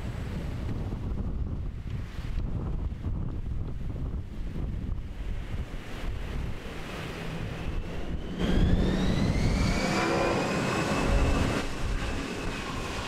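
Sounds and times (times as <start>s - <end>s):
wind on microphone: 0.0s - 13.0s
engine whine rising in pitch: 6.7s - 13.0s.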